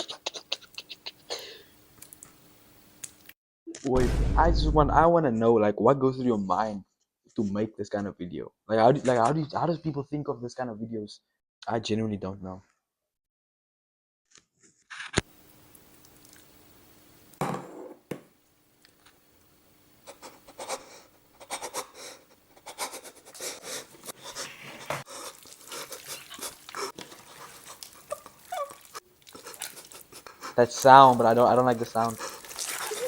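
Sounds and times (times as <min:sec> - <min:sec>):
hands squishing stuffing: 0:23.2 - 0:33.0.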